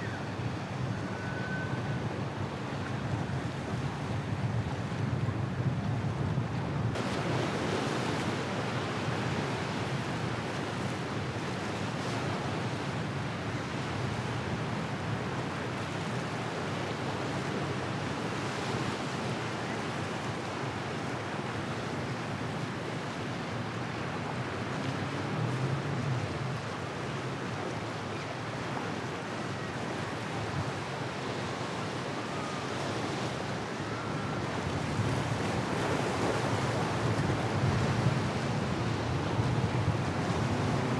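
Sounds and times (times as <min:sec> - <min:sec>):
wind noise on microphone: 0:00.0 - 0:08.3, 0:34.4 - 0:40.9
waves and surf rushing: 0:00.0 - 0:40.9.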